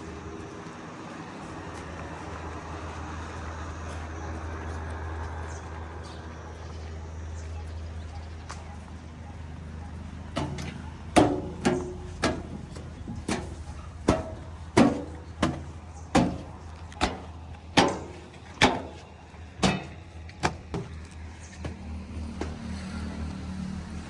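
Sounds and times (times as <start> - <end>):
low engine hum: 0.0 - 24.0
sharp ringing knocks: 10.4 - 20.9.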